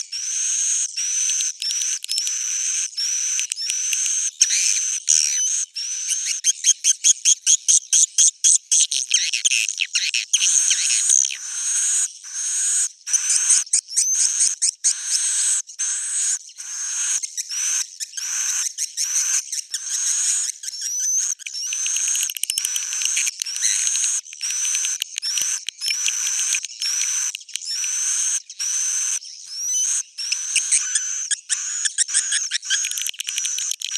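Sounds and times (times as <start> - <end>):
fast bird trill: 9.2 - 33.9
swiftlets chirping: 20.3 - 29.2.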